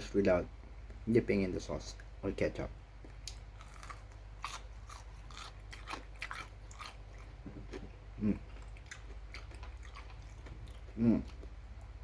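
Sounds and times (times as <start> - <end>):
crunchy chewing of fried chicken: 3.0 - 12.0.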